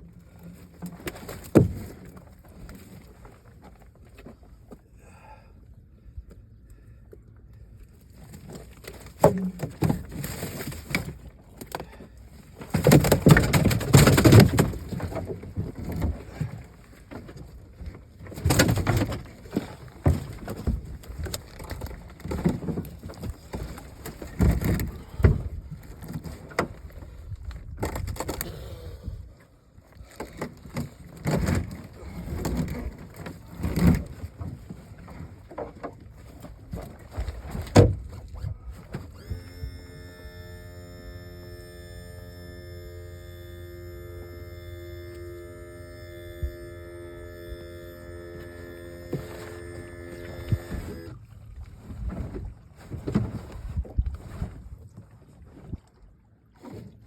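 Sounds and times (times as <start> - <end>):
fishing gear knocking and rustling: 12.6 - 16.6.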